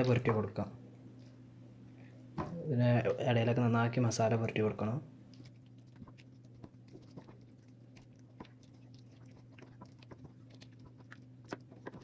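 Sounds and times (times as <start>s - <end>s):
steady low hum: 0.0s - 12.0s
hands squelching marinade into chicken: 5.3s - 12.0s.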